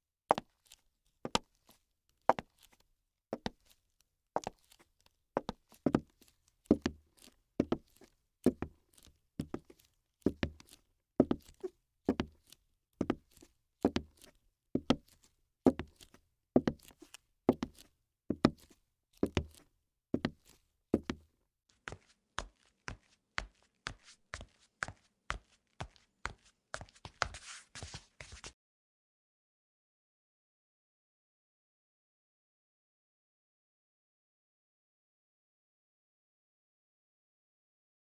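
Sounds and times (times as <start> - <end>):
footsteps: 21.9 - 28.5.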